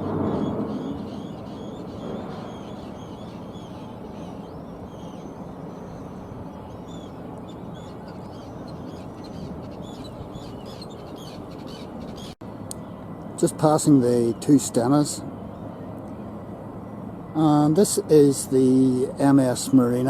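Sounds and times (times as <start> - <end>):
low outdoor rumble: 0.0 - 20.0
terns calling with harsh cries: 0.2 - 12.4.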